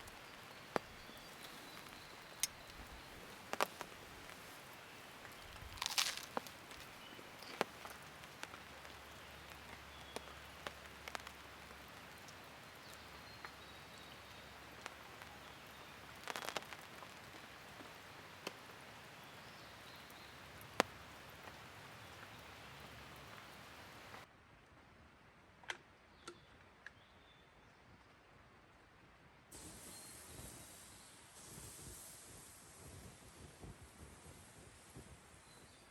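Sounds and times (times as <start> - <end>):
campfire crackling and popping: 0.0 - 24.3.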